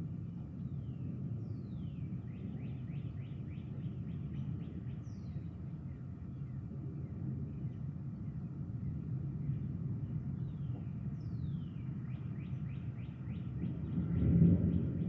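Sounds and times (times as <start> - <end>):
steady low rumble: 3.8 - 15.0.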